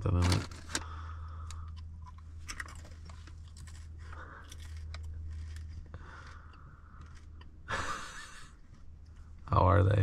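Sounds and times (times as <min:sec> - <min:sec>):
low hum: 0:00.0 - 0:10.0
person chewing crunchy chips: 0:01.6 - 0:07.7.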